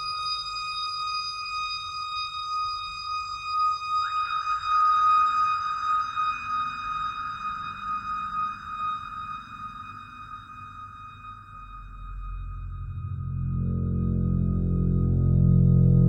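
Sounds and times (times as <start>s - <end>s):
synthesizer drone: 12.0s - 16.0s
upward pitch sweep: 12.5s - 16.0s.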